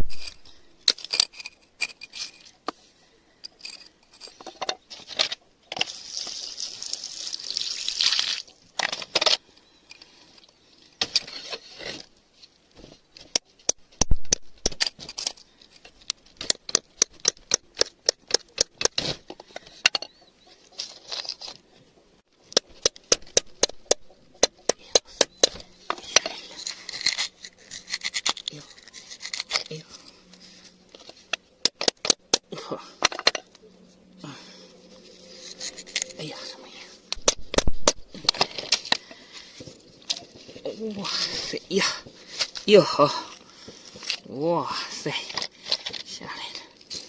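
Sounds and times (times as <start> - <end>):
gritty scraping of soil and stone: 0.0 - 47.0.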